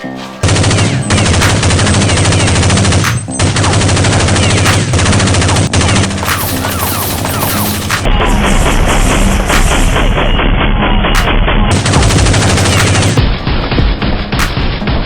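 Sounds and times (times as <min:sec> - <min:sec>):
automatic gunfire: 0:00.4 - 0:09.0, 0:11.7 - 0:13.2.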